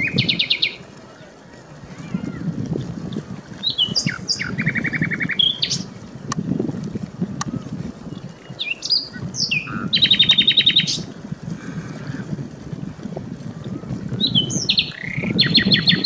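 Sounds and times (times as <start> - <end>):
songbird whistling and trilling: 0.0 - 0.8, 3.6 - 5.9, 8.2 - 11.1, 14.2 - 16.0.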